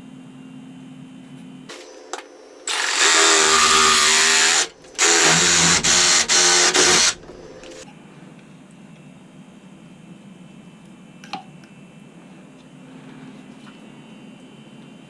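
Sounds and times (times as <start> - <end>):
power drill running: 2.6 - 7.8.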